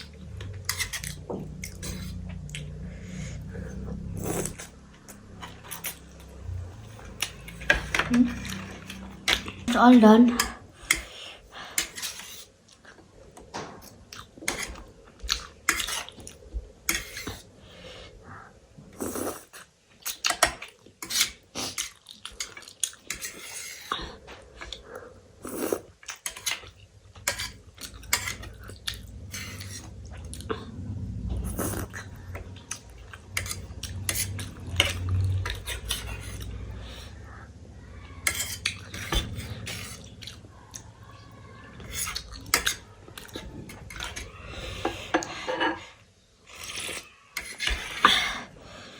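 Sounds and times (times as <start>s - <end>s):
low rumble: 28.6s - 38.0s.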